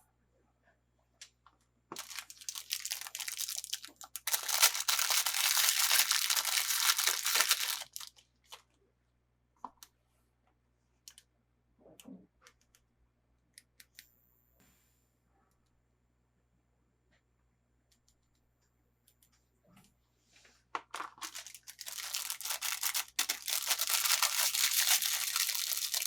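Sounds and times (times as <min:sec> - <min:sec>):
packaging tearing and crinkling: 0:02.0 - 0:08.2, 0:21.1 - 0:26.0.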